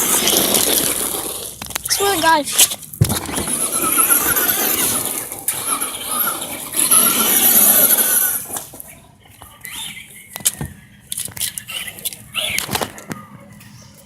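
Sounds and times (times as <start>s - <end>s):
toy car motor whining: 0.0s - 8.8s.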